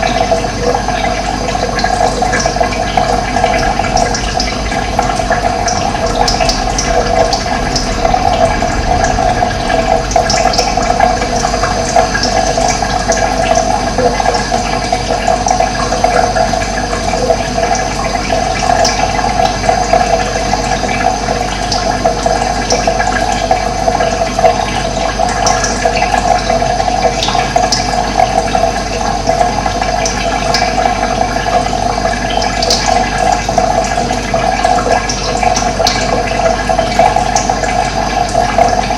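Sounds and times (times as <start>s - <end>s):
running water rushing: 0.0s - 27.9s.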